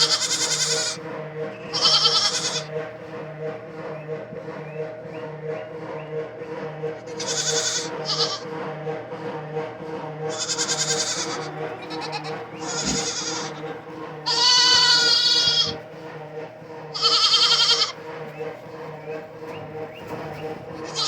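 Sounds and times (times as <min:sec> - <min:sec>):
goats bleating: 0:00.0 - 0:01.0, 0:01.6 - 0:02.7, 0:07.0 - 0:08.5, 0:10.3 - 0:16.1, 0:16.9 - 0:21.0
steady low hum: 0:00.0 - 0:21.0.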